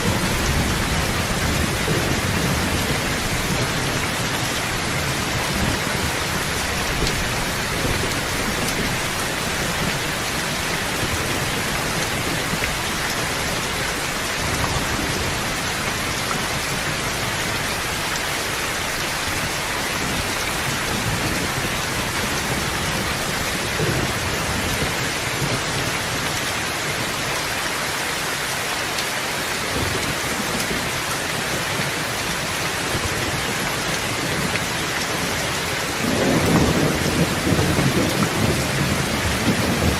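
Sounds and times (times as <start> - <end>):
thunder rumbling: 0.0 - 26.4, 29.7 - 39.9
steady rain: 0.0 - 39.9.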